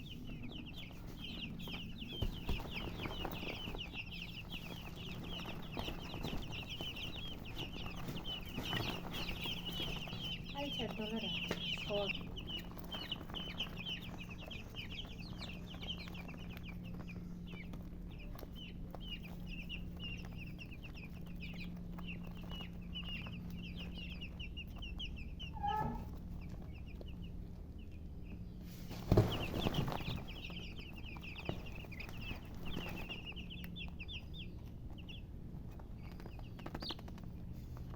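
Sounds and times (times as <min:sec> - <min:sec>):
baby chicks peeping: 0:00.0 - 0:37.9.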